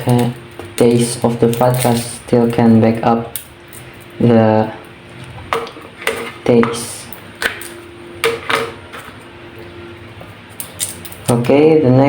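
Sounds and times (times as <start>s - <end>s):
kitchenware clinks and knocks: 8.2s - 9.2s.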